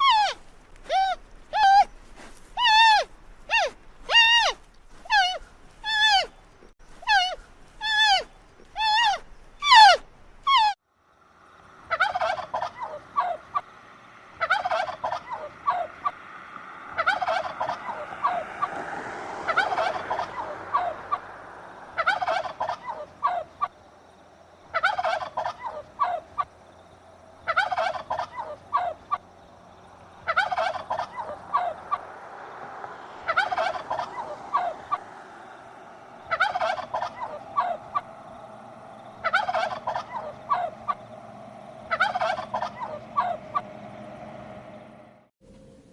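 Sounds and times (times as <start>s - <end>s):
farm fowl warbling calls: 11.7s - 23.8s, 24.6s - 45.1s.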